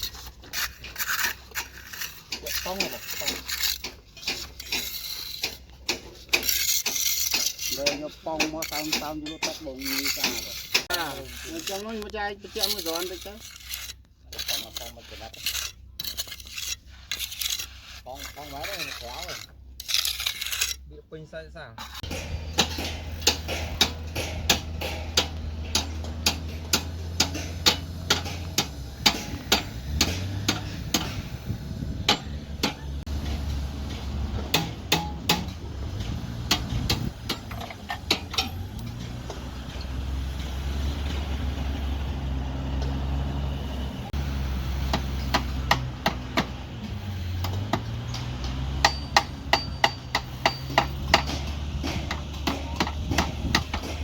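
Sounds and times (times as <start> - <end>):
sharp hammer strikes: 22.0 - 31.3, 34.5 - 35.6, 47.4 - 54.0
low motor hum: 22.0 - 49.8.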